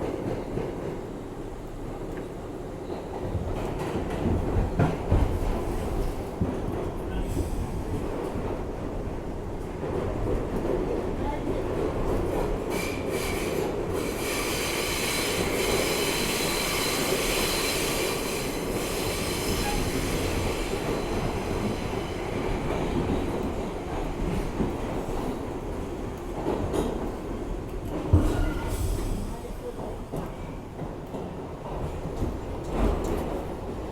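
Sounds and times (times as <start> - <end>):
rumble of train wheels: 0.0 - 33.9
steel wheels squealing on rail: 12.7 - 22.5, 28.2 - 29.4.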